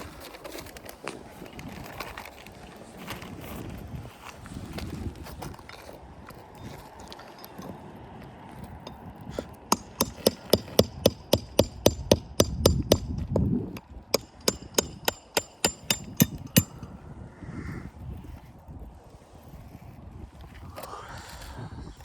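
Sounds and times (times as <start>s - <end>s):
hammer striking metal: 9.4s - 17.0s.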